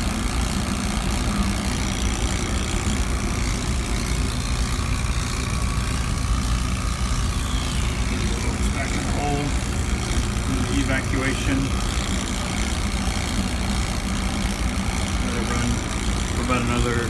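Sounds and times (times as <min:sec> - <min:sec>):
vacuum pump humming: 0:00.0 - 0:17.0.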